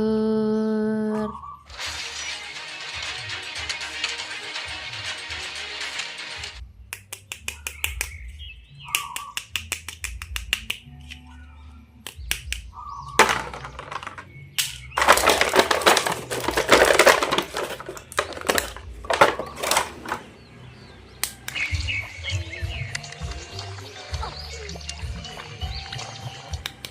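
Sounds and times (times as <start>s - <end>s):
plastic parts clicking and tapping: 13.2s - 20.3s
packaging crinkling: 15.0s - 20.2s.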